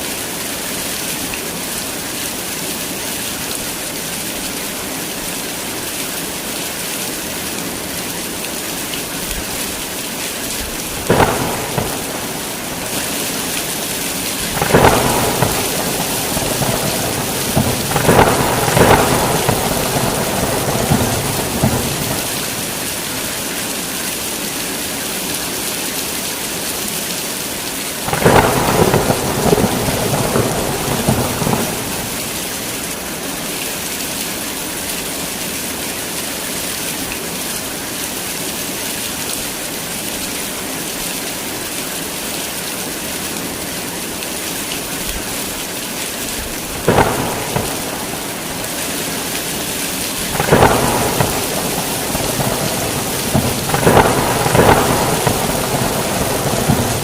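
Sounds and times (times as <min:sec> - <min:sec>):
heavy rain falling: 0:00.0 - 0:57.0
rolling thunder: 0:11.0 - 0:23.1, 0:28.1 - 0:32.5, 0:46.7 - 0:57.0.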